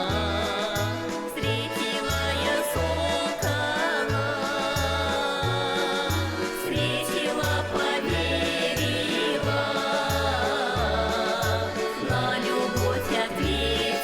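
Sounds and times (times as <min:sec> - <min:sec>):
bouncing bass line: 0:00.0 - 0:14.0
button accordion ensemble playing folk song: 0:00.0 - 0:14.0.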